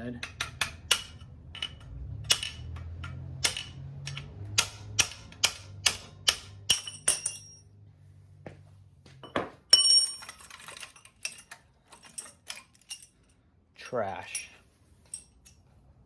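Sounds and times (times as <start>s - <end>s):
hammer striking steel punch: 4.6s - 7.6s.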